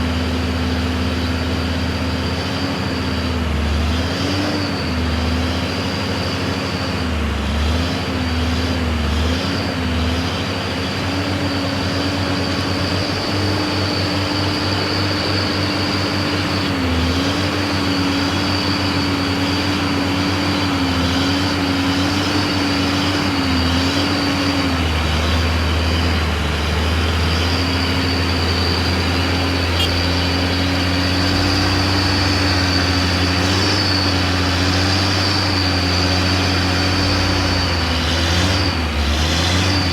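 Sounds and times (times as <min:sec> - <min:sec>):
truck diesel engine under load: 0:00.0 - 0:39.9
high whine: 0:09.6 - 0:39.9.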